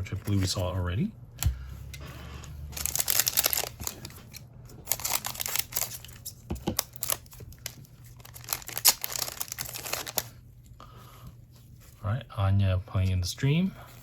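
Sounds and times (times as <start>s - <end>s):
wrapper tearing and crinkling: 2.8s - 10.4s.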